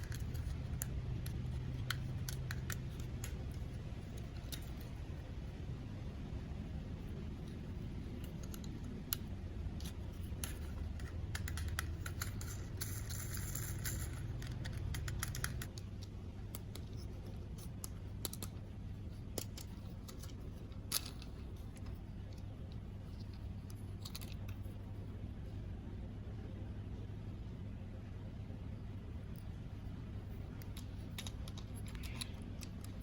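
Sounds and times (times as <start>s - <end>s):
plastic toys clicking and tapping: 0.0s - 4.9s, 8.2s - 18.6s, 19.3s - 22.5s, 23.2s - 24.6s, 30.6s - 33.0s
steady low hum: 0.0s - 33.0s.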